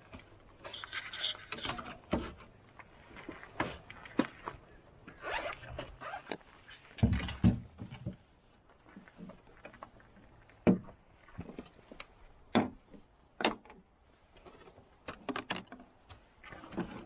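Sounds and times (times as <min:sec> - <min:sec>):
camping gear knocks and clicks: 0:05.7 - 0:08.2, 0:08.9 - 0:17.0.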